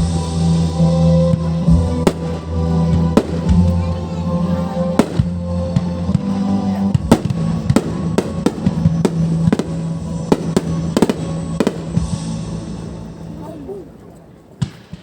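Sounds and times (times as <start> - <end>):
music with sustained notes: 0.0 - 15.0
fireworks banging: 1.1 - 13.0.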